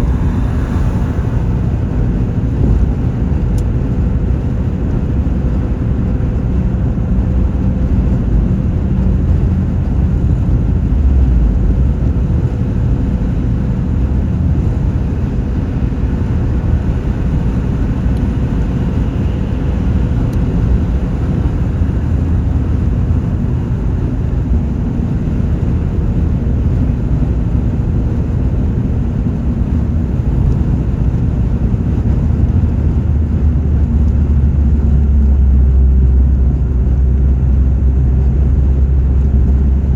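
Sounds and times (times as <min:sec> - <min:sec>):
faint steady hum: 0:00.0 - 0:05.1
car engine and road rumble: 0:00.0 - 0:39.9.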